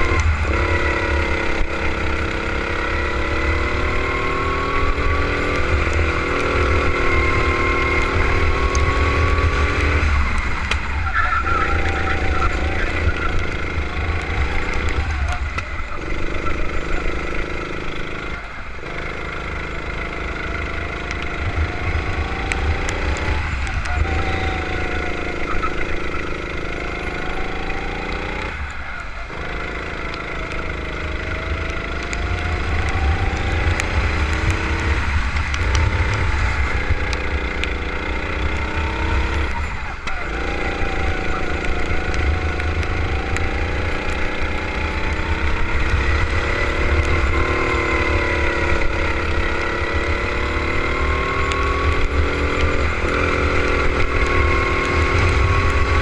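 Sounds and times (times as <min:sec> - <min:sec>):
go-kart engine: 0:00.0 - 0:56.0.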